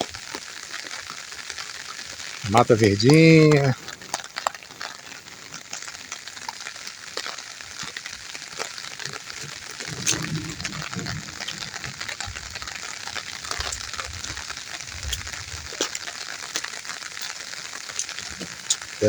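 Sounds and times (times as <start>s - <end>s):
rainwater dripping and running: 0.0s - 19.0s
low rumbles: 9.0s - 16.6s.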